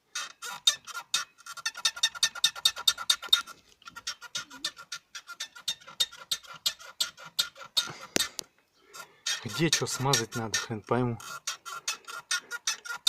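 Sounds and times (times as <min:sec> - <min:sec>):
steering squeaking: 0:08.9 - 0:13.0.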